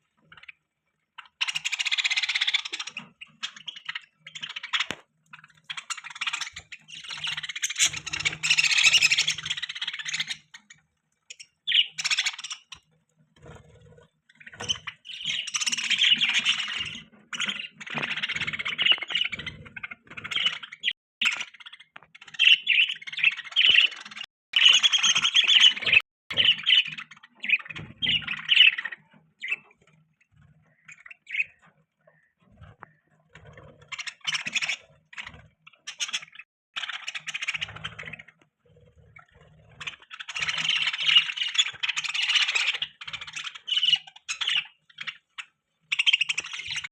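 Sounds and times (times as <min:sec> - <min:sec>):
budgerigars chirping and chattering: 0:00.1 - 0:46.9.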